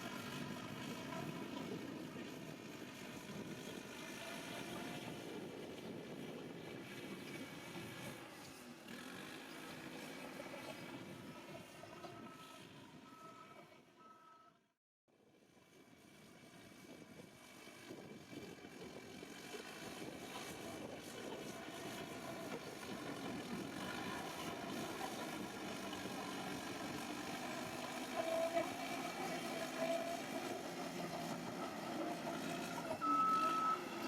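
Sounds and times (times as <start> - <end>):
heavy diesel engine running: 16.4 - 34.0.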